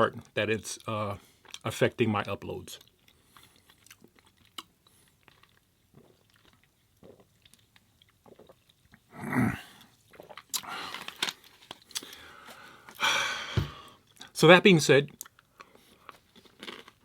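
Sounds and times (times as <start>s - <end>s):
close chewing: 2.8s - 9.1s, 15.1s - 17.0s
loud noisy mouth sound: 9.1s - 9.8s.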